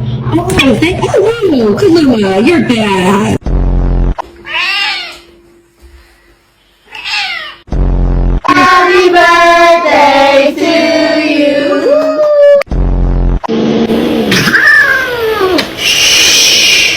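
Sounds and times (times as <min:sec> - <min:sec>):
cat meowing: 0:04.4 - 0:05.3, 0:06.9 - 0:07.6.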